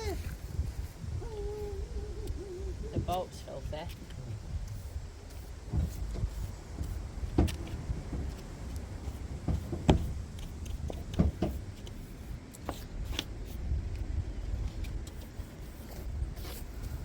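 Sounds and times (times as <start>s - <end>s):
steady low rumble: 0.0s - 17.0s
sharp knocks and clicks: 5.7s - 11.9s.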